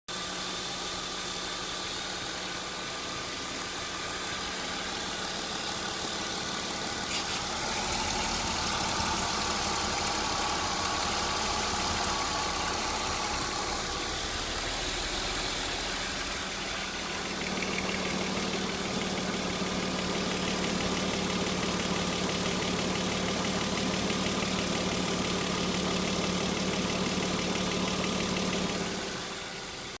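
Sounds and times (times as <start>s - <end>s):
car engine idling: 0.1s - 30.0s
exhaust rattle: 3.4s - 24.1s.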